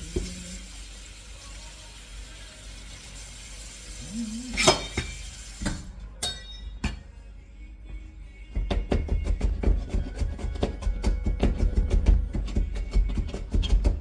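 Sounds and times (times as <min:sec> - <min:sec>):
food sizzling in a pot: 0:00.0 - 0:06.0
utensil clinking against pot: 0:04.5 - 0:07.1.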